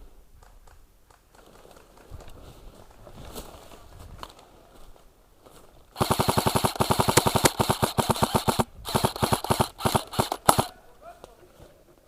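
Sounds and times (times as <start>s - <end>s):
electric rifle full auto bursts: 6.0s - 10.8s.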